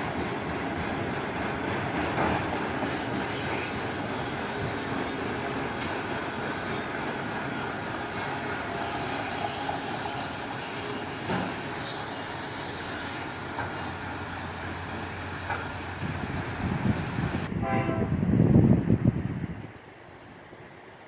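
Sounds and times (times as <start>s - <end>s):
train wheels clanking: 0.0s - 16.6s
freight train rumbling past: 0.0s - 21.0s
locomotive horn: 17.5s - 18.3s.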